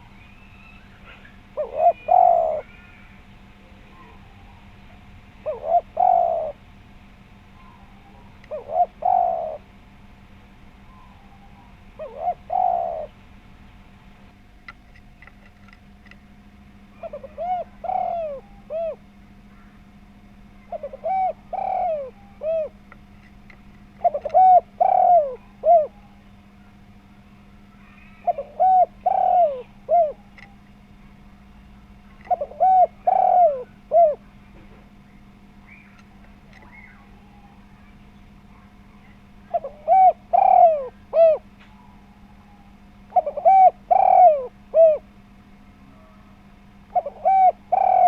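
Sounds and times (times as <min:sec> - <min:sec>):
dove cooing: 0:00.0 - 0:06.7, 0:07.5 - 0:09.8, 0:10.8 - 0:13.3, 0:16.8 - 0:34.9, 0:35.6 - 0:48.0
faint steady hum: 0:00.0 - 0:48.0.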